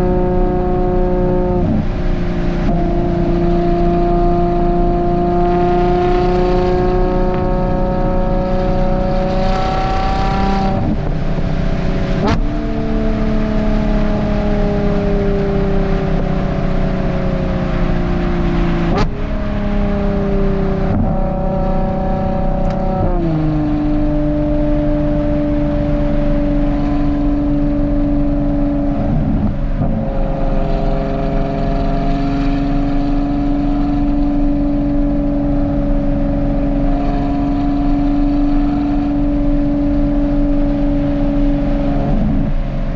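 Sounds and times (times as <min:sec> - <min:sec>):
car engine accelerating: 0:00.0 - 0:42.9
exhaust cracks: 0:22.5 - 0:23.1.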